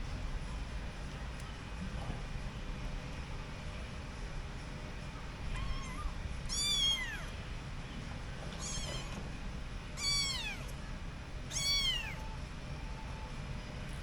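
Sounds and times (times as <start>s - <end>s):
kitten meowing: 5.5s - 7.3s, 8.6s - 9.2s, 10.0s - 10.7s, 11.5s - 12.2s.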